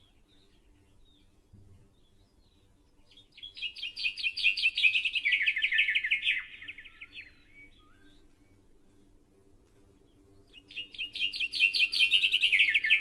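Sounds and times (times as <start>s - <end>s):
songbird trilling: 3.1s - 8.2s, 10.5s - 13.0s.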